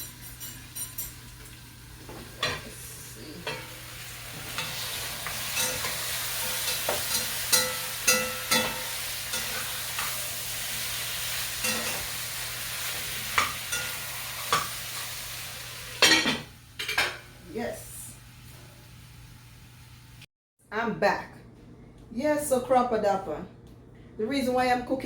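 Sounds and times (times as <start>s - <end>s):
chicken sizzling in a pot: 0.0s - 20.3s
metal spoon knocking a pot: 6.8s - 9.6s.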